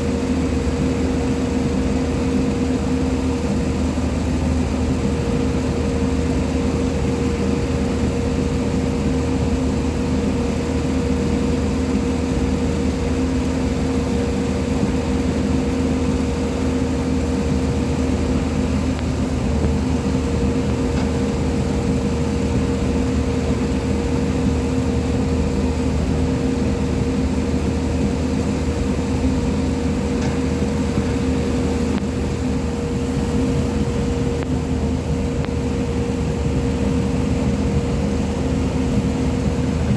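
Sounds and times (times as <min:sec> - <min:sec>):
excavator diesel engine running: 0:15.9 - 0:35.5.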